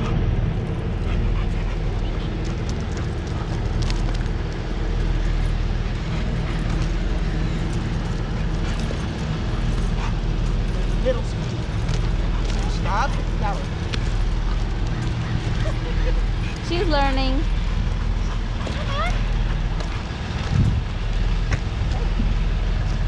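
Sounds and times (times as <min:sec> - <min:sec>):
low tonal hum: 0:00.0 - 0:23.0
train rumbling on tracks: 0:00.0 - 0:23.0
small clicks and scuffs: 0:01.7 - 0:15.7.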